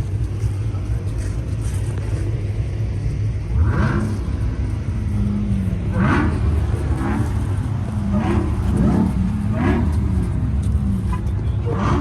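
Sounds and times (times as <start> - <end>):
engines idling: 0.0 - 12.0
car engine revving: 3.4 - 12.0.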